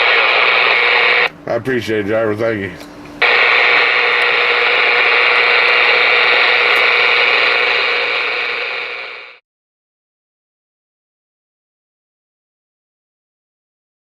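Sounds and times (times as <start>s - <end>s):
radio static hiss: 0.0s - 1.3s, 3.2s - 9.4s.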